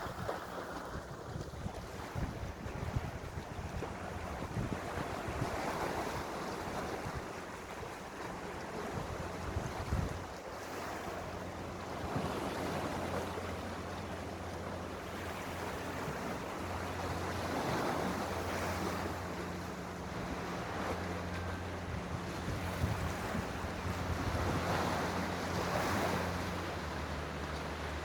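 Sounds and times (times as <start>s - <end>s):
wind buffeting microphone: 0.0s - 10.4s, 15.3s - 27.1s
sea waves washing: 0.0s - 28.0s.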